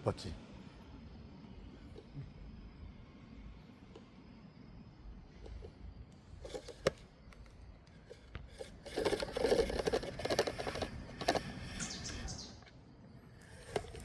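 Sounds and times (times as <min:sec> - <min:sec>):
small clicks: 0:05.3 - 0:12.8, 0:13.4 - 0:14.0
rustling and scraping: 0:05.4 - 0:14.0.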